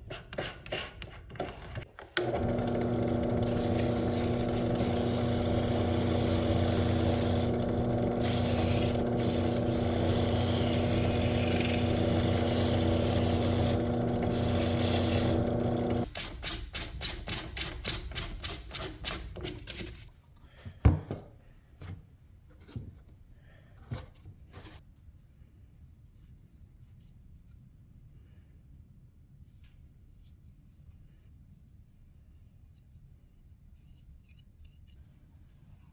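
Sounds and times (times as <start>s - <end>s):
power tool motor hum: 2.0s - 16.1s.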